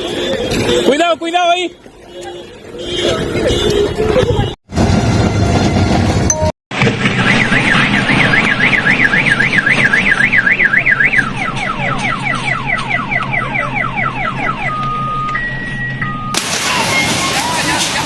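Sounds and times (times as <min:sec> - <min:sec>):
car alarm siren: 0:07.1 - 0:18.0.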